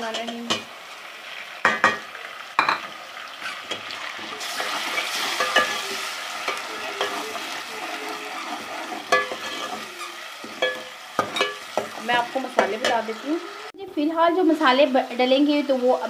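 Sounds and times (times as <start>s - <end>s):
paste sizzling in ghee: 0.0s - 13.8s.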